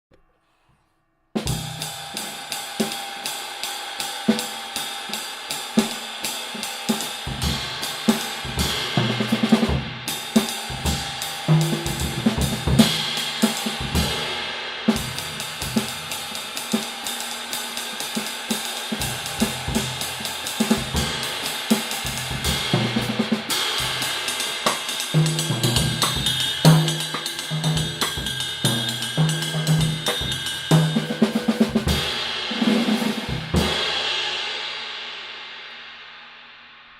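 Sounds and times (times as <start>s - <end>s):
cymbal strokes ringing: 1.5s - 36.6s
bass drum beats: 7.3s - 16.2s, 18.9s - 32.3s, 33.2s - 33.9s.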